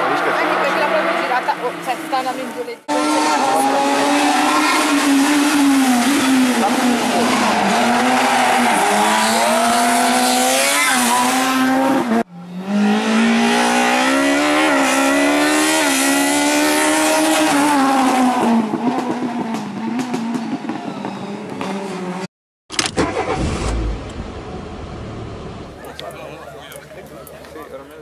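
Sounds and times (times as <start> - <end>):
rally car engines revving: 0.0 - 22.3.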